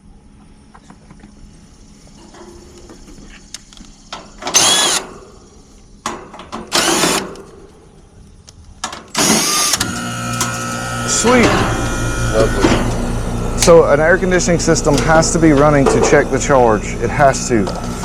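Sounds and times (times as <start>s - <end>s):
heat pump humming: 0.0s - 18.0s
cordless drill whirring: 4.5s - 5.1s, 6.7s - 7.2s, 9.1s - 13.8s.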